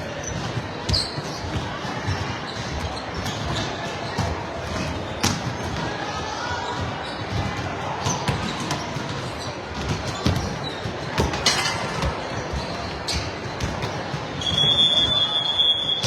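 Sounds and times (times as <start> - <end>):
echoing gymnasium din: 0.0 - 16.0
volleyball hits and bounces: 0.2 - 6.0, 6.8 - 14.7.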